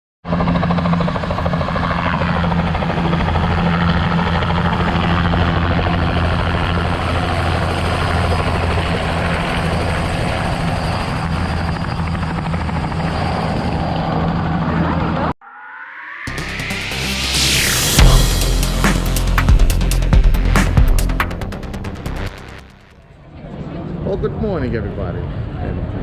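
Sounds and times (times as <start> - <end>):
large engine running: 16.3 - 22.9.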